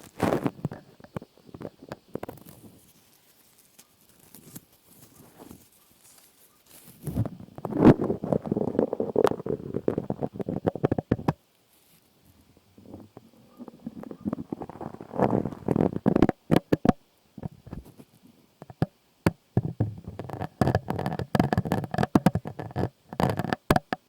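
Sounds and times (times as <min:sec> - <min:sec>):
close crackling and scratching: 0:00.0 - 0:24.0.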